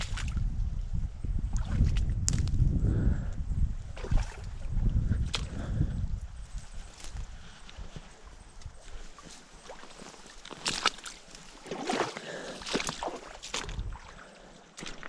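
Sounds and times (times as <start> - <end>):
footsteps sloshing through water: 0.0 - 0.5, 1.4 - 2.6, 3.8 - 15.0
splashes and crunches: 0.0 - 0.5, 1.5 - 2.6, 4.0 - 5.7, 8.6 - 15.0.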